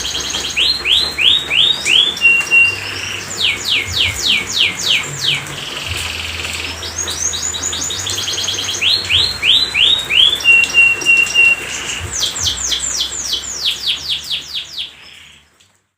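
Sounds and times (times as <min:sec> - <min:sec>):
canary singing: 0:00.0 - 0:15.5.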